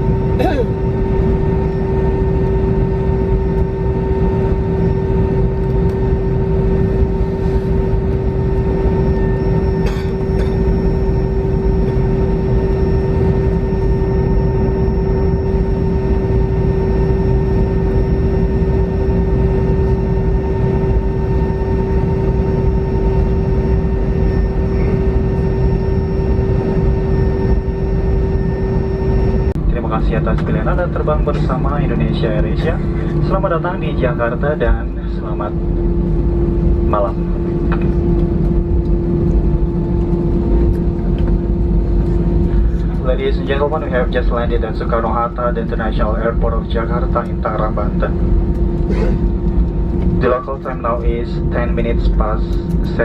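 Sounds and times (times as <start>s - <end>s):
airliner cabin engine and air rush: 0.0s - 53.0s
constant humming tone: 0.0s - 53.0s.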